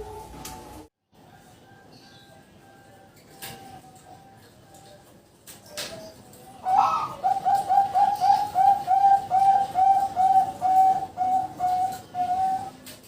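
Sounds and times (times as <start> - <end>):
dove cooing: 6.6 - 12.9.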